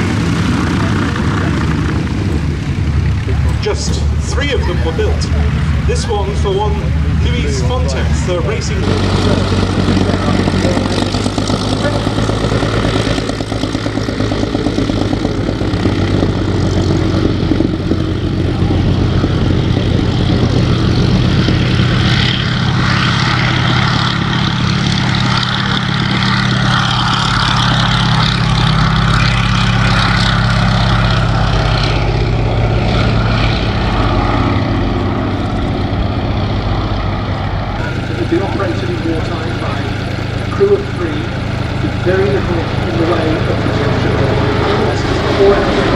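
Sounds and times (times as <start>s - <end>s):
piston aircraft engine running: 0.0s - 45.9s.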